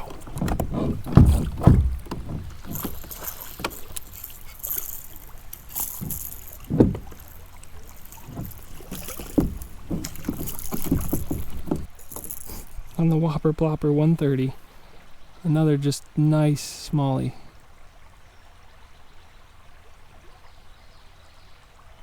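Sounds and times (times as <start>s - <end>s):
dull thumps: 0.0s - 13.2s
water splashing around kayak: 0.0s - 15.3s.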